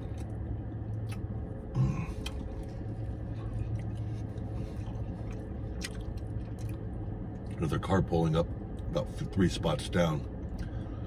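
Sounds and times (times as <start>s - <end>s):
chewing sandwich: 0.0s - 7.6s
low hum in car cabin: 0.0s - 11.0s.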